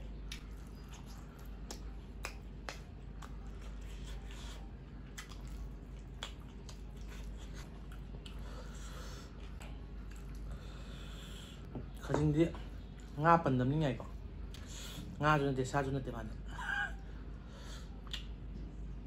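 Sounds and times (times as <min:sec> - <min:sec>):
lip smacks and mouth clicks: 0:00.2 - 0:08.4, 0:18.0 - 0:18.4
person chewing: 0:00.2 - 0:11.3.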